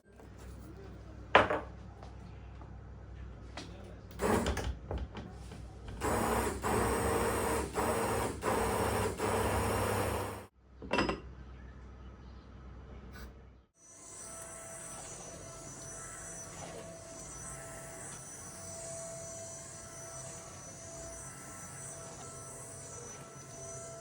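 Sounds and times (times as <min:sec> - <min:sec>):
kitchen appliance motor pulsing: 0:04.2 - 0:04.6, 0:06.0 - 0:10.5, 0:13.9 - 0:24.0.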